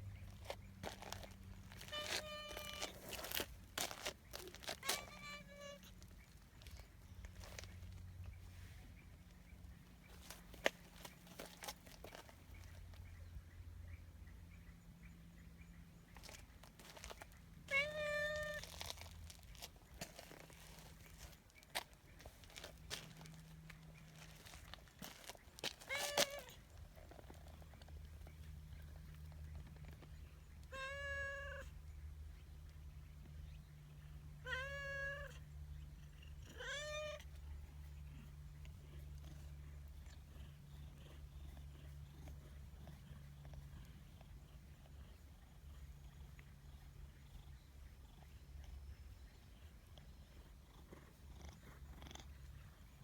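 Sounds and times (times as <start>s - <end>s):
cat meowing: 1.8s - 3.2s, 4.7s - 5.9s, 17.7s - 18.7s, 25.9s - 26.6s, 30.7s - 31.7s, 34.4s - 35.4s, 36.5s - 37.2s.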